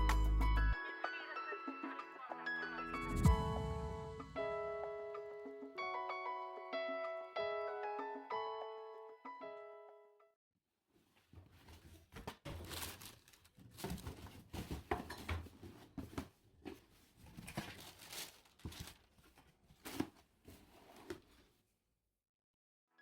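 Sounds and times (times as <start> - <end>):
packaging crinkling: 12.5 - 14.5, 17.3 - 20.1.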